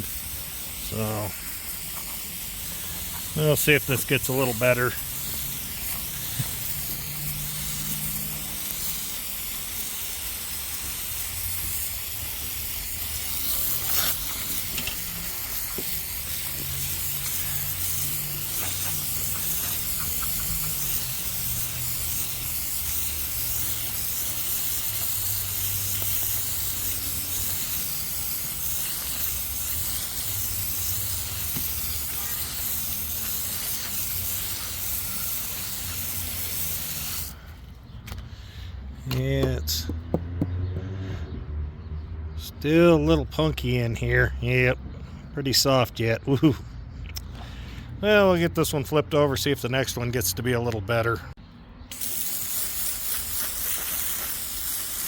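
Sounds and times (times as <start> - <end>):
saw blade hissing through wood: 0.0 - 39.0, 51.9 - 55.0.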